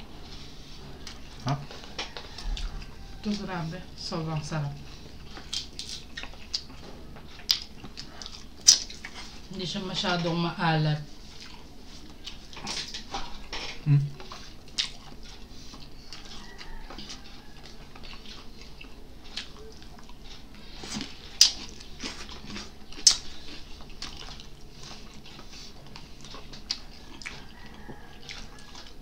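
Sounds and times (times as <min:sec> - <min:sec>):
wet chewing: 0:00.0 - 0:09.5, 0:11.0 - 0:29.0
lip smacks: 0:23.0 - 0:23.3.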